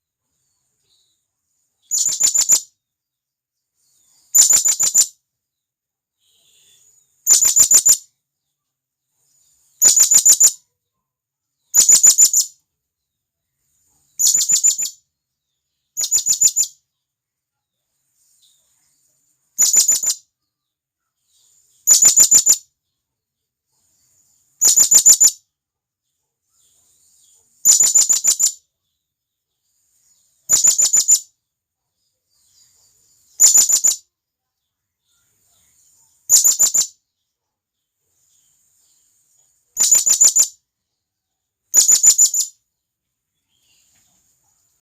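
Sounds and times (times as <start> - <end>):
parrot shrill trilling calls: 7.3 - 8.0, 39.8 - 40.5.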